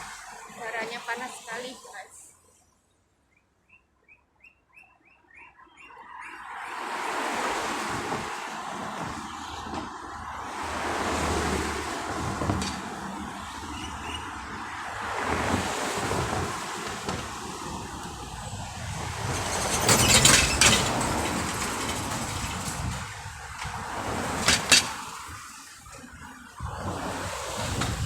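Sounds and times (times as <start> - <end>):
road traffic passing: 0.0 - 28.0
wind noise on microphone: 7.1 - 28.0.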